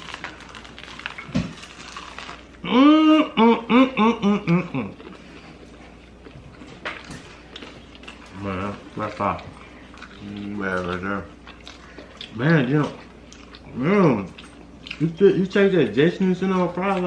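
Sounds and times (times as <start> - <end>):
person laughing: 2.6 - 5.0.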